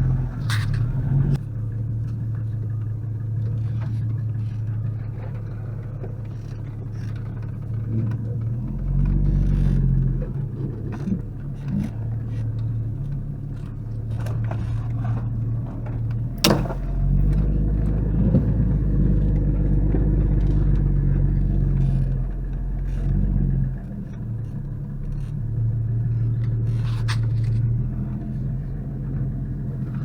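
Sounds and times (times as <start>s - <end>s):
engine rumbling under load: 0.0s - 30.0s
sharp knock: 16.4s - 16.9s.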